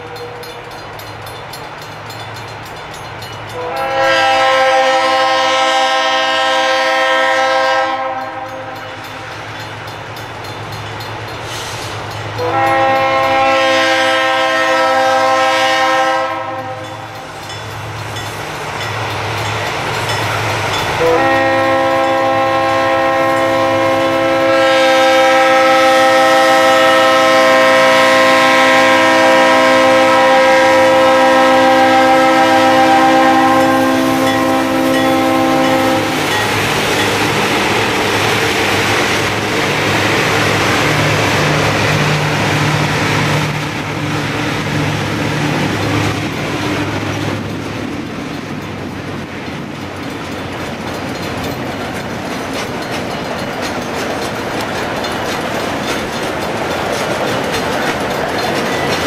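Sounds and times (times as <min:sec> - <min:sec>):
diesel locomotive engines: 0:00.0 - 0:59.0
train wheels rolling: 0:00.0 - 0:59.0
locomotive air horn blast: 0:03.6 - 0:09.0, 0:11.5 - 0:17.2, 0:21.0 - 0:36.4.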